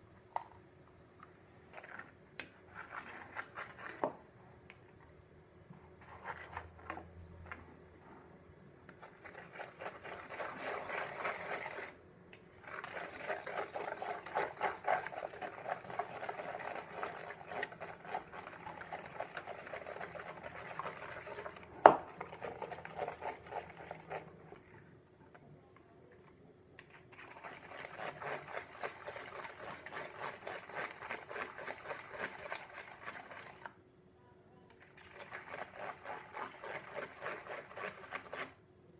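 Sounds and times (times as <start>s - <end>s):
whisk clinking and scraping in bowl: 9.0s - 12.0s, 12.6s - 24.3s, 27.2s - 33.7s, 35.0s - 38.5s.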